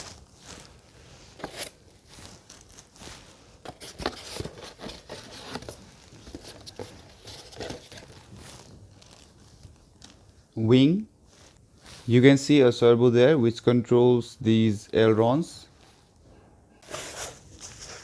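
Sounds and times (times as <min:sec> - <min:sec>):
packaging rustling and crinkling: 0:00.0 - 0:10.5, 0:16.8 - 0:18.0.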